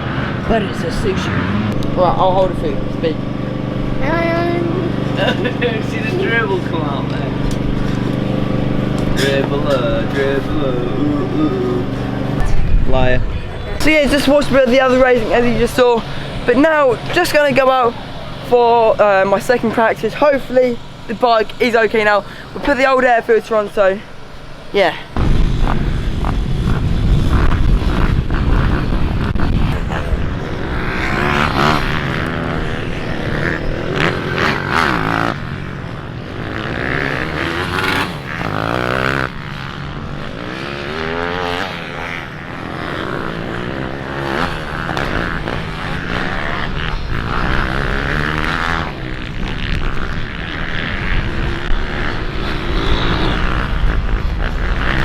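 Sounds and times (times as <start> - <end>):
pit bike engines revving: 0.0 - 55.0.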